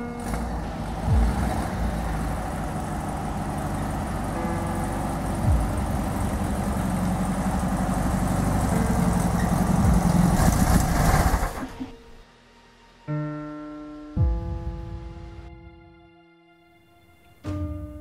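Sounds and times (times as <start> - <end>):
car engine running: 0.0 - 12.2
piano note ringing: 1.0 - 10.1.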